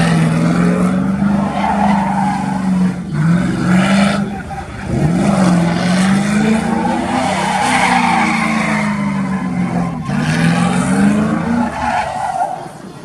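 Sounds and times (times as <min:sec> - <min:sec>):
truck engine revving: 0:00.0 - 0:13.0
tyres squealing: 0:01.0 - 0:13.0.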